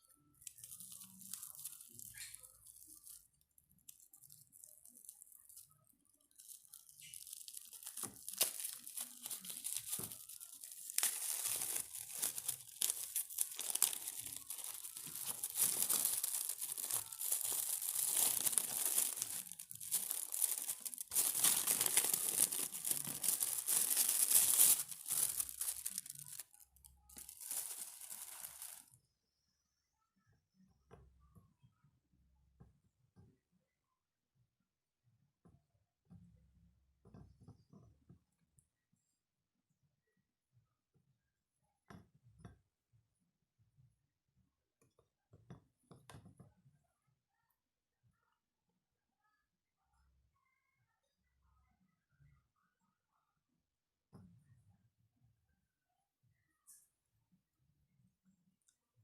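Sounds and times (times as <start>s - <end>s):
wrapper crinkling and tearing: 0.4s - 28.9s.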